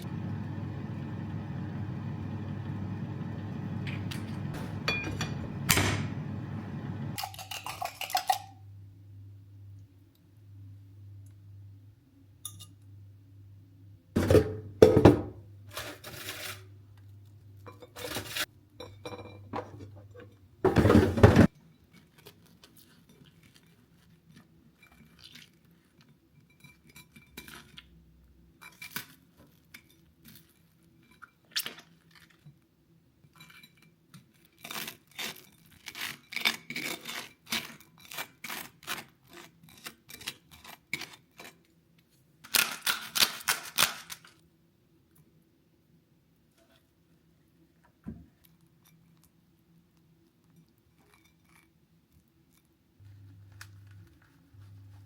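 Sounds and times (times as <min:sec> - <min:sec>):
low steady hum: 0:00.0 - 0:07.3, 0:53.0 - 0:55.0
dishes and utensils clinking: 0:03.9 - 0:06.2, 0:17.6 - 0:21.5.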